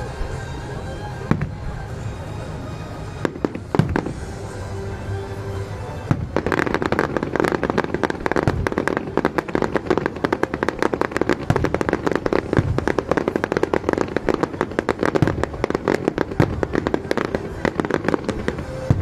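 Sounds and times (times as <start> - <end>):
fireworks crackling and popping: 3.0 - 5.0, 5.8 - 19.0
deep firework thuds: 3.2 - 4.3, 6.0 - 19.0.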